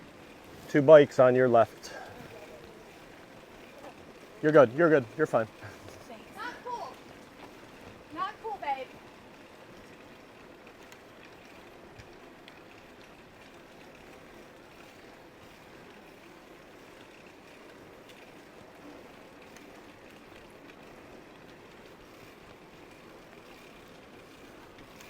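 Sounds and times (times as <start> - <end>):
bicycle tyres rolling on pavement: 0.0 - 25.0
faint clicks: 9.7 - 25.0.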